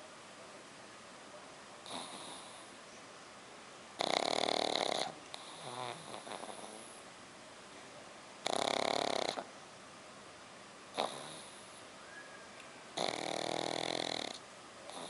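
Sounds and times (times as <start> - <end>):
puppy snoring loudly: 1.8 - 2.8, 4.0 - 7.0, 8.4 - 9.5, 10.9 - 11.8, 13.0 - 15.0.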